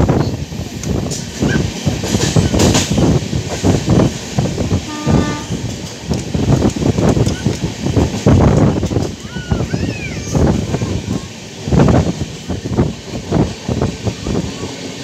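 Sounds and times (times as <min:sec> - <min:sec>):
train wheel and rail noise: 0:00.0 - 0:15.0
short train horn note: 0:04.9 - 0:05.6.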